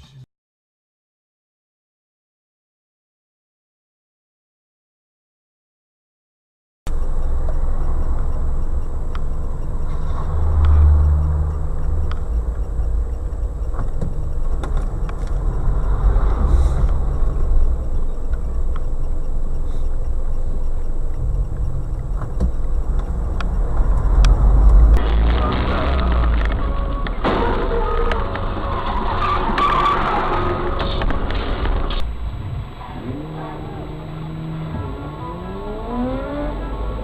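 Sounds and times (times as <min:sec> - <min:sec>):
faint ticks: 0:06.9 - 0:25.0
car engine and road rumble: 0:06.9 - 0:37.0.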